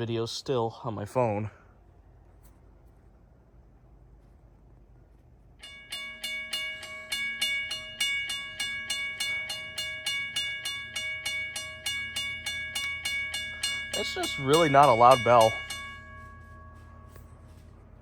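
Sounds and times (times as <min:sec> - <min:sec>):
railroad crossing bell ringing: 0:05.5 - 0:18.0.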